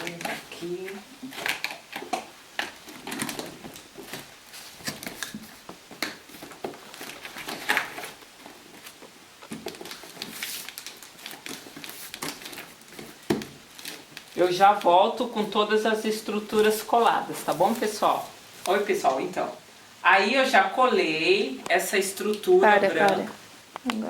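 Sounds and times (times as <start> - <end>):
cardboard rustling and scraping: 1.3 - 14.4, 16.6 - 18.6.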